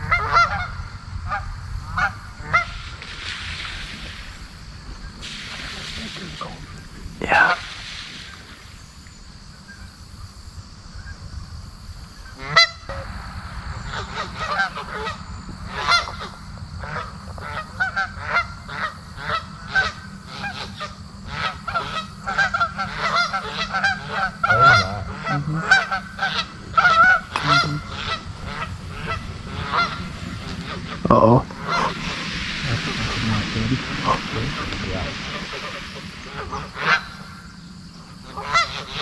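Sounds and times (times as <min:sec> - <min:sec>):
geese honking: 0:00.0 - 0:03.0, 0:12.4 - 0:13.1, 0:13.9 - 0:39.0.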